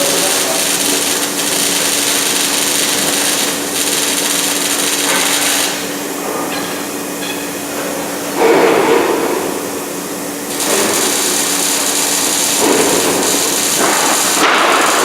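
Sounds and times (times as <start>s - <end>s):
arc welding crackling hiss: 0.0s - 6.1s, 10.5s - 15.0s
low machine hum: 0.0s - 15.0s.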